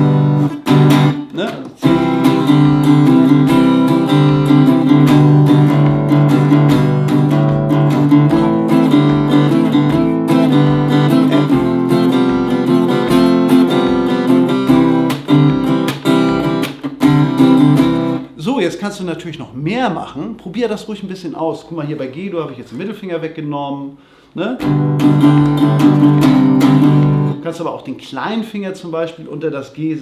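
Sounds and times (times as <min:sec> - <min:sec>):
acoustic guitar strumming: 0:00.0 - 0:18.4, 0:24.6 - 0:27.5.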